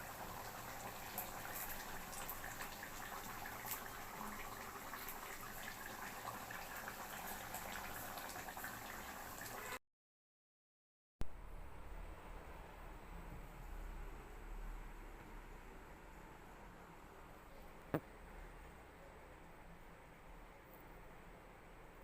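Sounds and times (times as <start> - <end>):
curry bubbling in a pot: 0.0 - 9.8.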